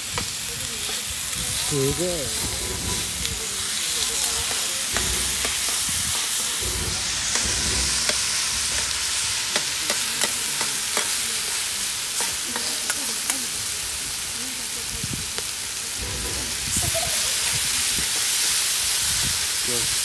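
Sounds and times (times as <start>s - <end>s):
food sizzling on a griddle: 0.0s - 20.0s
metal spatulas scraping a griddle: 0.2s - 11.5s.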